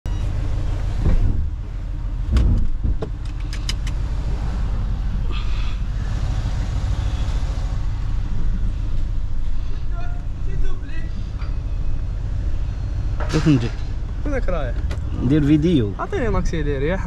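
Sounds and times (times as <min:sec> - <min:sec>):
car engine low rumble: 0:00.1 - 0:17.0
sharp clicks: 0:03.2 - 0:04.0.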